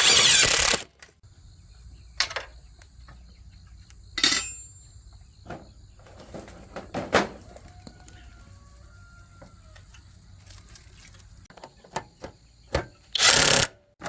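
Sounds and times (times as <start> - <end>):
metallic clinks and knocks: 4.2 - 4.8.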